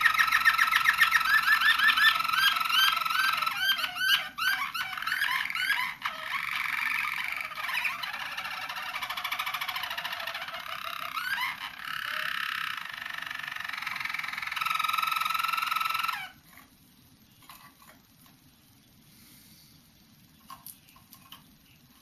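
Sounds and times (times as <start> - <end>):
canary singing trills: 0.0 - 17.6
faint small clicks: 20.4 - 21.6.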